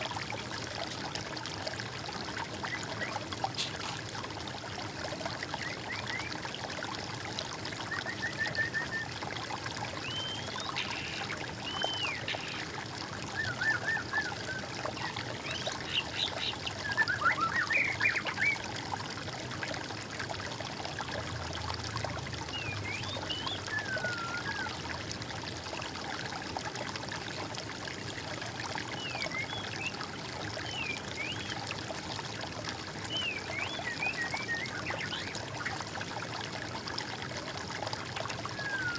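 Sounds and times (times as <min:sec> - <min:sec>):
water trickling: 0:00.0 - 0:38.9
songbirds calling: 0:10.0 - 0:12.7, 0:13.4 - 0:18.6, 0:22.4 - 0:24.8.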